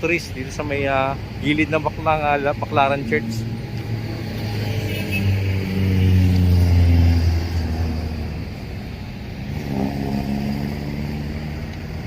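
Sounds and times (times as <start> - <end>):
vehicle engine passing by: 3.0 - 8.5.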